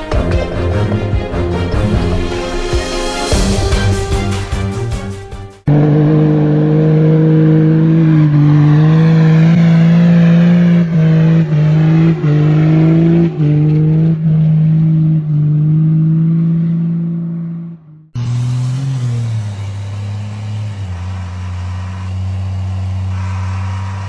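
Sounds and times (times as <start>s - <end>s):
diesel engine at high revs: 5.6s - 24.0s.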